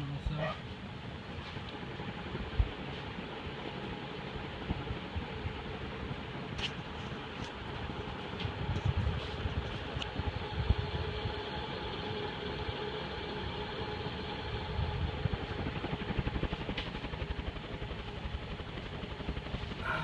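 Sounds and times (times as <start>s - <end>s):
ceiling fan motor hum: 0.0s - 20.0s
rush of moving air: 6.6s - 11.4s.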